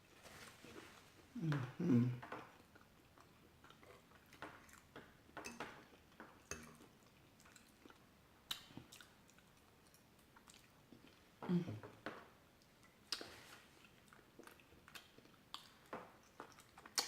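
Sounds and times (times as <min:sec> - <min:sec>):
wet chewing: 0:02.3 - 0:05.2, 0:06.1 - 0:11.3, 0:12.6 - 0:17.0.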